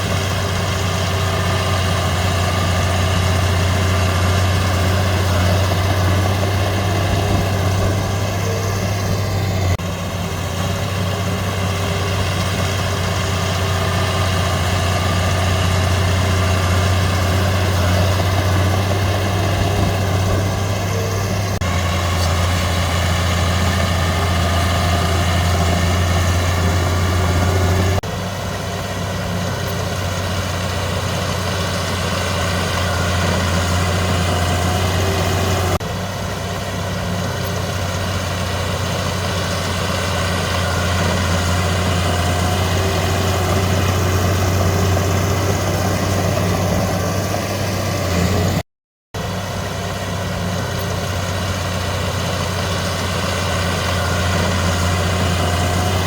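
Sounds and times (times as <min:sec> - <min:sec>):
heavy diesel engine running: 0:00.0 - 0:48.6, 0:49.2 - 0:56.0.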